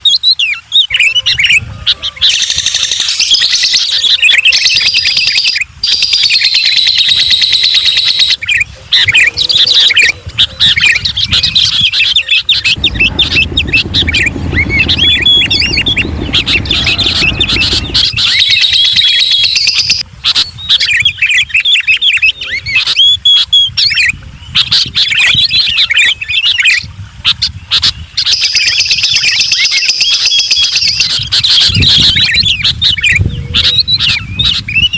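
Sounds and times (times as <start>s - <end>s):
songbirds chirping and warbling: 0.0s - 34.9s
low rumble: 8.8s - 20.1s.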